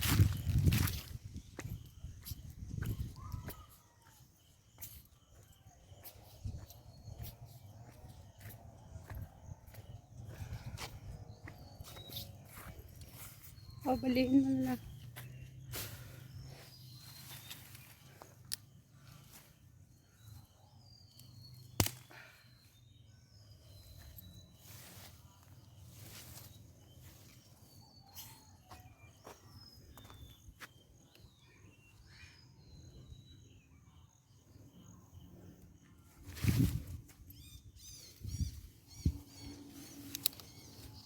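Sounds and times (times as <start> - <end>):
footsteps in vegetation: 0.0 - 18.6, 23.8 - 30.8, 36.2 - 37.2
small birds chirping: 0.0 - 41.0
sharp snaps: 21.8 - 22.2.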